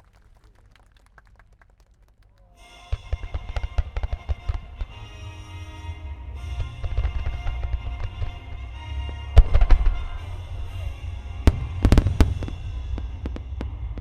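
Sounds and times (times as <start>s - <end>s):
music: 2.6s - 14.0s
firework shells booming: 2.9s - 5.5s, 6.4s - 14.0s
low rumble: 3.0s - 14.0s
sharp firework cracks: 9.4s - 14.0s.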